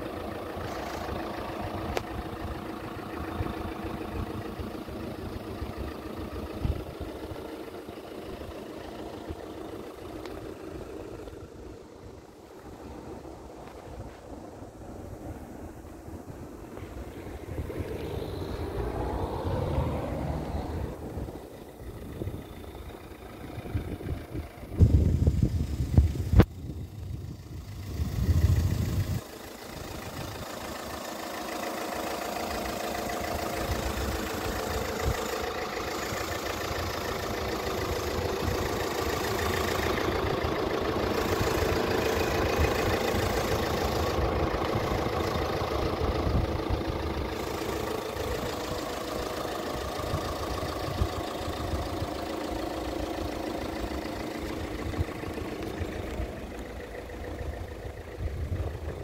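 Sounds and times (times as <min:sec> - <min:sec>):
car engine idling: 0:00.0 - 0:59.0
low rumble: 0:08.4 - 0:31.0.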